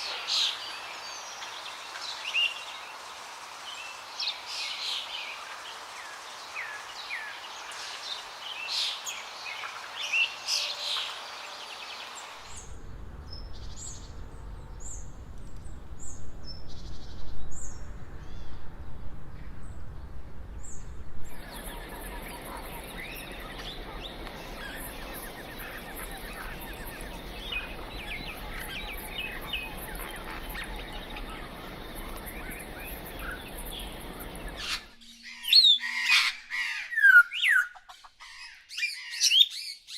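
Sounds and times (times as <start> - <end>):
low rumble: 12.5 - 34.9
birds chirping: 20.6 - 39.4
dense chorus of calls: 21.3 - 35.0
steady high buzz: 21.3 - 35.0.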